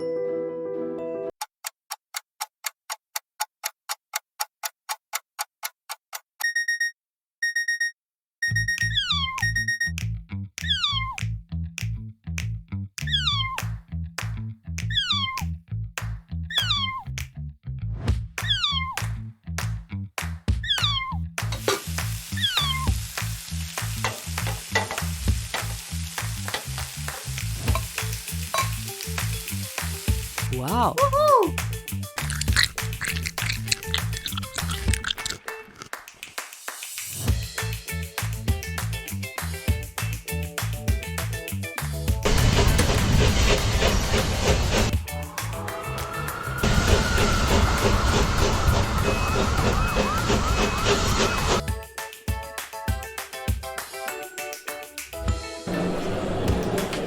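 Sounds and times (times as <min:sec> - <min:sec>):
background music: 0:00.0 - 0:01.3, 0:27.8 - 0:35.9, 0:44.9 - 0:47.8, 0:51.6 - 0:57.0
clock ticking: 0:01.6 - 0:06.6
alarm clock beeping: 0:06.4 - 0:10.0
cat meow: 0:10.7 - 0:11.2, 0:13.1 - 0:13.6, 0:14.9 - 0:15.5, 0:16.5 - 0:17.0, 0:18.4 - 0:19.0, 0:20.6 - 0:21.2
food sizzling in a frying pan: 0:21.6 - 0:30.5, 0:32.2 - 0:35.4.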